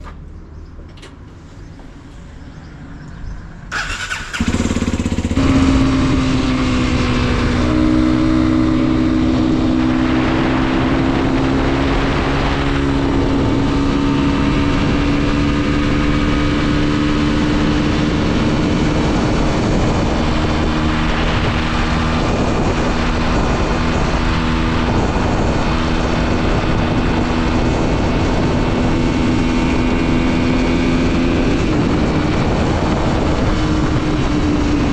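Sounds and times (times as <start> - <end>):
motorcycle engine running: 2.4 - 34.9
motorcycle engine cranking: 3.7 - 5.8.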